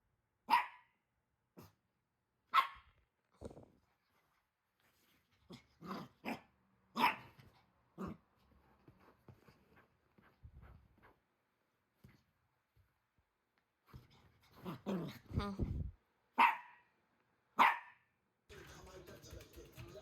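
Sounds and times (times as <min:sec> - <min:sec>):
puppy barking: 0:00.5 - 0:01.0, 0:02.5 - 0:02.9, 0:06.2 - 0:07.4, 0:16.4 - 0:16.9, 0:17.6 - 0:18.1.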